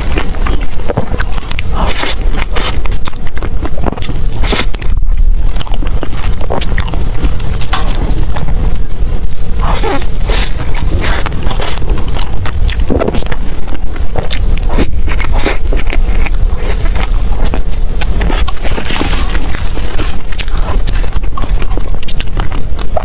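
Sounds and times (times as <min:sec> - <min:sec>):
steady low rumble: 0:00.0 - 0:23.0
wet chewing clicks: 0:00.0 - 0:23.0.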